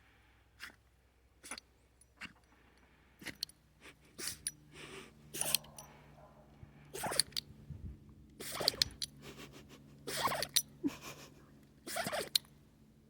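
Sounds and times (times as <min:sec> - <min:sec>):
dog sneezing and snorting: 0:04.1 - 0:04.4, 0:05.4 - 0:05.7, 0:10.1 - 0:10.4, 0:11.9 - 0:12.4.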